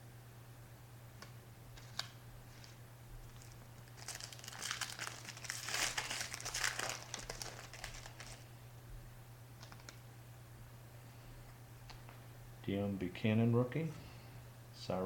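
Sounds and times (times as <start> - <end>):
low electrical hum: 0.0 - 15.0
plastic wrapper crinkling: 1.8 - 8.4, 9.6 - 10.0.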